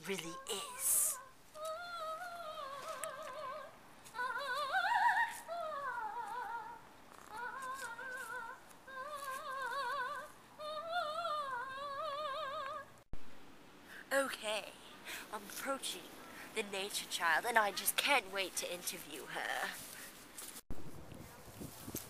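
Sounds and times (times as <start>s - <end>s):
woman singing opera-style: 0.0s - 12.9s.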